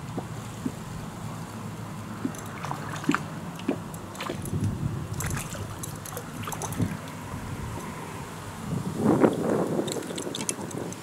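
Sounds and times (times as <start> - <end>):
small water splashes: 2.0 - 8.2.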